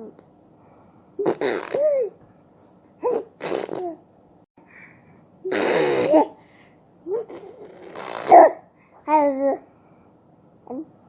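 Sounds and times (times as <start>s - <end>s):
baby babbling: 7.1s - 9.6s.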